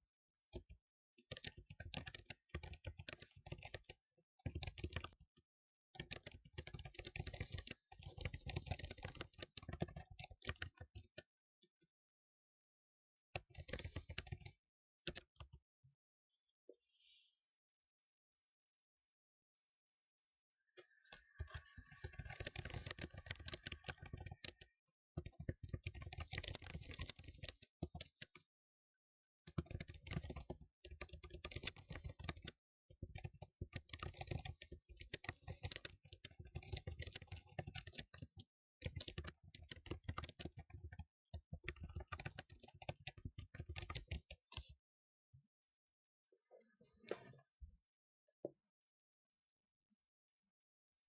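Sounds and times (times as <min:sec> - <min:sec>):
fast typing on a keyboard: 0:00.6 - 0:05.3, 0:06.0 - 0:11.3, 0:13.4 - 0:15.6, 0:21.1 - 0:28.4, 0:29.5 - 0:44.8.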